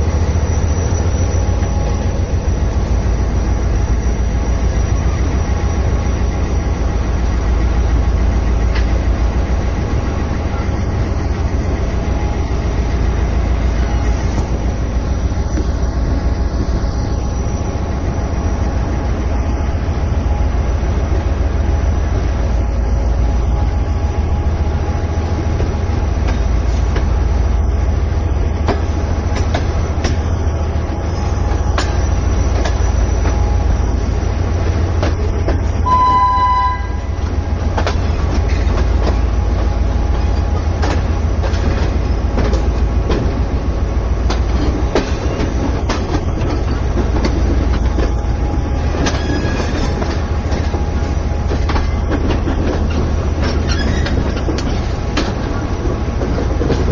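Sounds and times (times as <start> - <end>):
train rumble: 0.0 - 56.9
train horn blast: 35.8 - 37.3
wheels clicking over rail joints: 37.2 - 43.5, 44.2 - 56.9.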